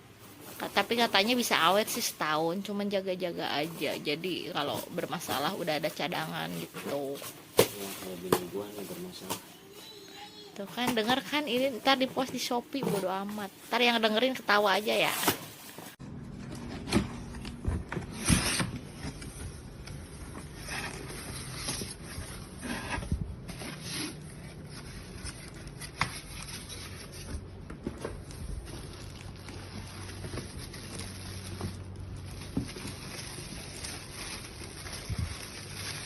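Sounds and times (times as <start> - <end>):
packaging rustling: 10.8 - 36.0.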